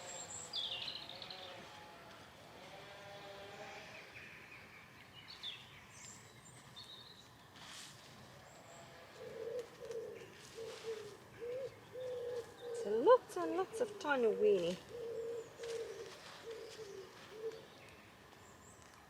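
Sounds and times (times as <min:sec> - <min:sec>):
low cooing bird: 0:08.8 - 0:17.9.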